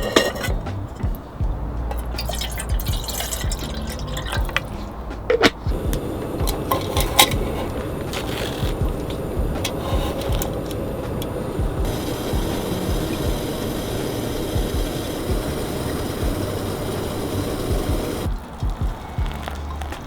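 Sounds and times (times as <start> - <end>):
utensils clicking and tapping: 0.0 - 1.2, 1.9 - 20.0
liquid pouring and stirring: 1.9 - 10.7.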